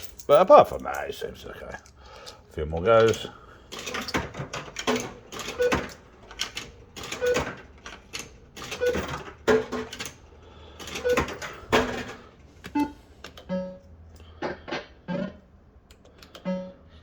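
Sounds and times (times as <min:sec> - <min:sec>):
fruit machine clacks and clunks: 0:02.7 - 0:13.8.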